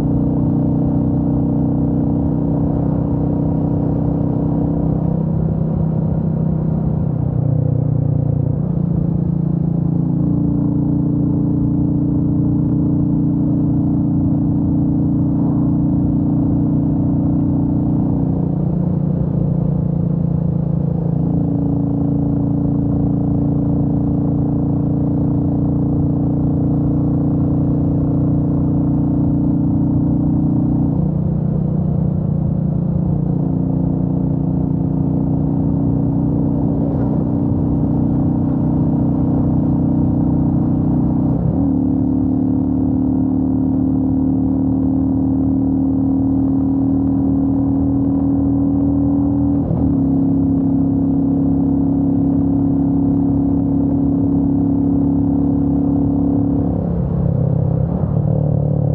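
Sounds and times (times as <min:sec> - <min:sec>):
motorcycle engine revving: 0:28.5 - 0:58.2.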